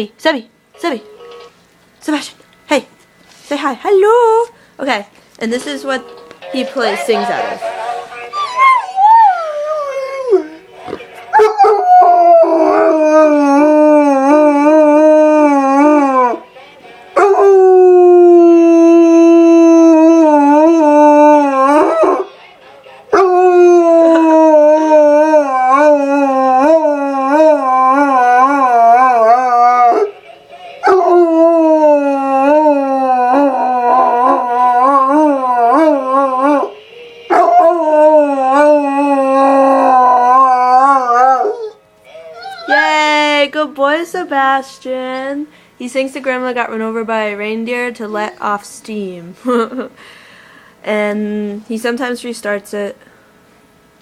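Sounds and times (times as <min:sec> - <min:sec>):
dog howling: 0:08.3 - 0:10.6, 0:11.3 - 0:16.4, 0:17.2 - 0:22.3, 0:23.1 - 0:30.1, 0:30.8 - 0:43.1.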